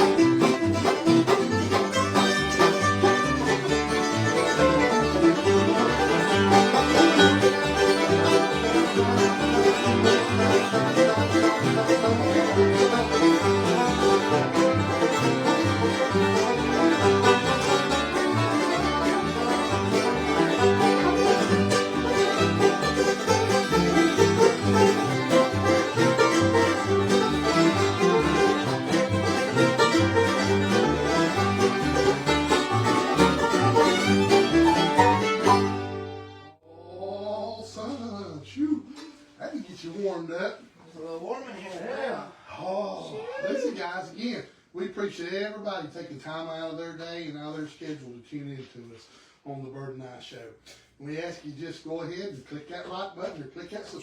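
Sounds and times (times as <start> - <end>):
bass line: 0.0 - 36.4
guitar rhythm: 0.0 - 36.5
rapid banjo picking: 0.0 - 36.5.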